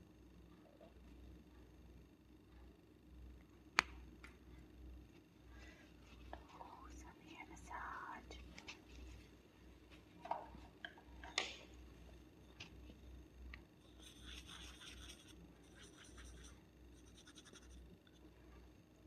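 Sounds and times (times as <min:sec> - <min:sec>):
fingernails scratching hair: 0:14.0 - 0:17.8.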